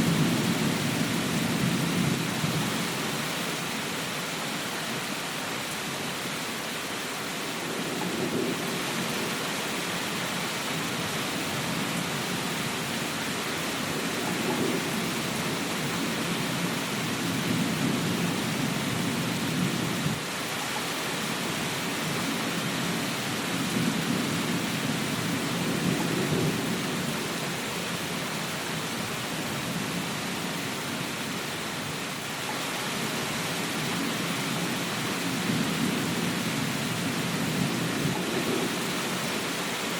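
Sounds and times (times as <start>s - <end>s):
heavy rain hiss: 0.0s - 39.9s
low rolling thunder: 11.5s - 20.2s, 23.5s - 27.4s, 35.2s - 39.4s.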